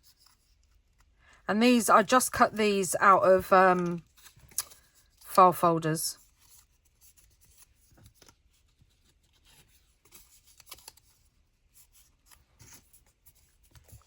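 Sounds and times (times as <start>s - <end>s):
paper card rustling: 6.2s - 14.0s.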